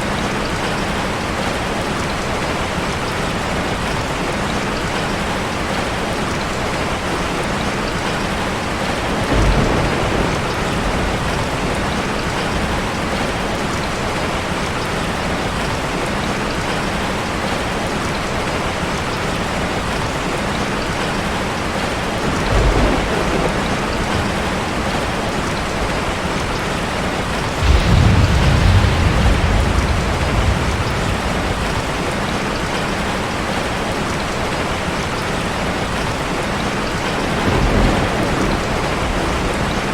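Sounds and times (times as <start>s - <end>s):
heavy rain on a car: 0.0s - 39.9s
thunder rumbling: 9.1s - 13.6s, 21.7s - 33.8s, 37.1s - 39.9s.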